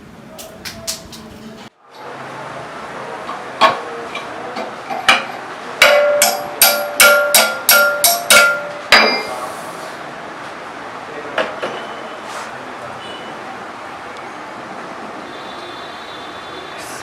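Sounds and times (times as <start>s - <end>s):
hammer on metal: 3.3s - 9.5s.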